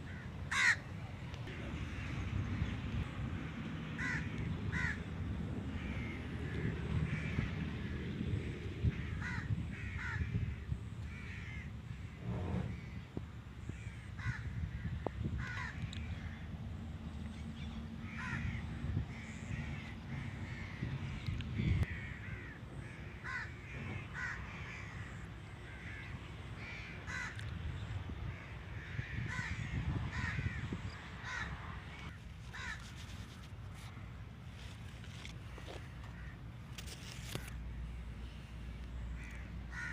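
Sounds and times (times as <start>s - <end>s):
birds cawing: 0.0s - 0.9s, 4.0s - 5.1s, 5.7s - 13.0s, 13.6s - 16.6s, 18.0s - 27.5s, 28.2s - 32.8s, 35.5s - 36.5s, 38.9s - 39.9s
low steady rumble: 0.0s - 31.4s.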